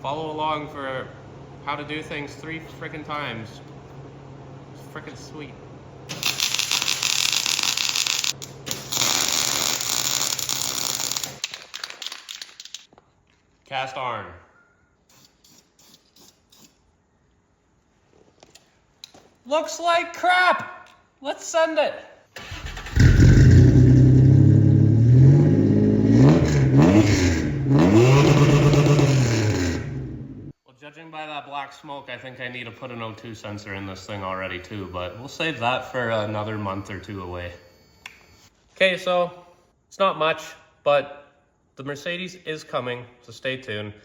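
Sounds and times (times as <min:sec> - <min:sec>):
welder crackling buzz: 0:06.1 - 0:11.4
car engine revving: 0:22.4 - 0:30.5.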